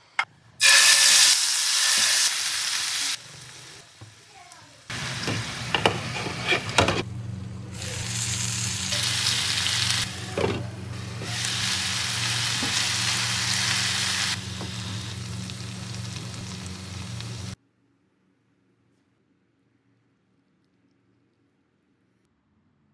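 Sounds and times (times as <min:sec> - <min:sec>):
meat sizzling in a pan: 0:00.6 - 0:06.6, 0:11.0 - 0:17.6
low steady hum: 0:04.9 - 0:17.6.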